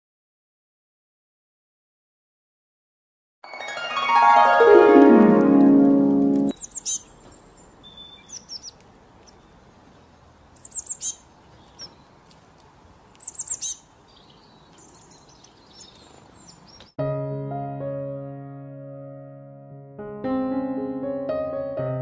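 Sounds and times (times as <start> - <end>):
small bird chirping: 6.4 - 12.3, 13.0 - 17.0.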